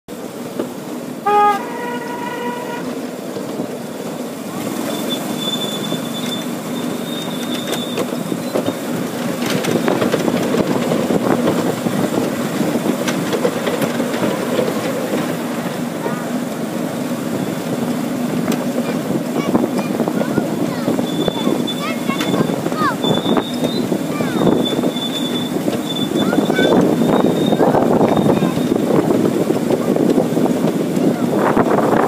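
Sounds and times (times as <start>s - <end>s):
small train wheels clattering: 0.2s - 31.9s
train toot: 1.0s - 3.2s, 4.6s - 10.8s, 13.0s - 29.0s
high squeal: 4.8s - 8.8s, 20.9s - 28.8s.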